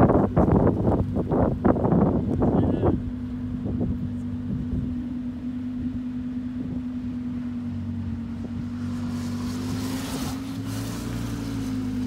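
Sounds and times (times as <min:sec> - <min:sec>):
car engine idling: 0:00.0 - 0:12.0
motorcycle passing: 0:03.6 - 0:12.0.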